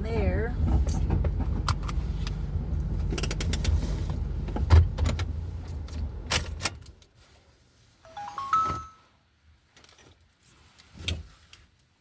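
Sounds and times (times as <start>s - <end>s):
sharp clicks and rattles: 3.0s - 3.8s
rising four-note chime: 8.1s - 9.1s.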